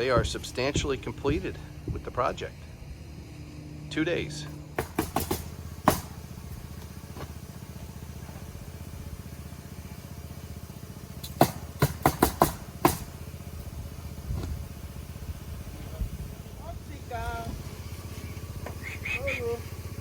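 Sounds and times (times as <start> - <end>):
engine idling: 0.0 - 20.0
sharp knocks: 4.8 - 6.2, 11.2 - 13.1.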